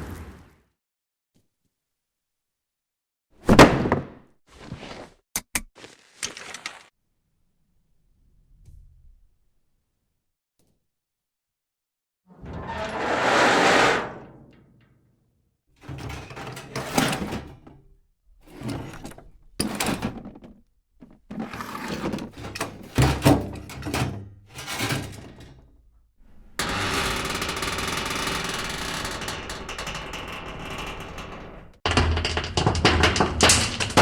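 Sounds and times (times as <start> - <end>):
heavy door clunks and scrapes: 12.3 - 14.8.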